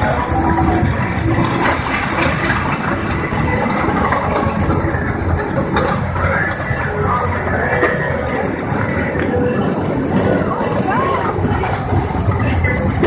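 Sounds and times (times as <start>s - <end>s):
tractor engine rumbling: 0.0s - 13.0s.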